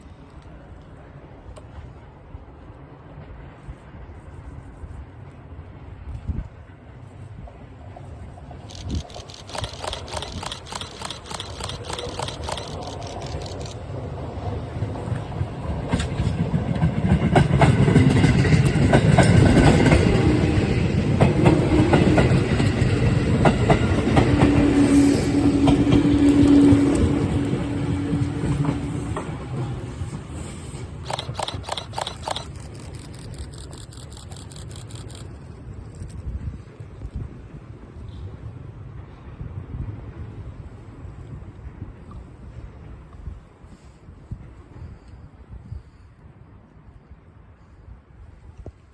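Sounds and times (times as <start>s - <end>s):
electric train rumbling: 0.0s - 48.9s
wheels clicking over rail joints: 8.4s - 24.8s, 25.5s - 36.8s.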